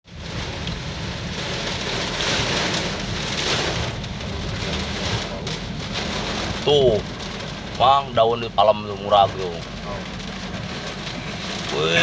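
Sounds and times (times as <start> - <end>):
gusting wind: 0.0 - 7.8
heavy rain pouring: 0.0 - 12.0.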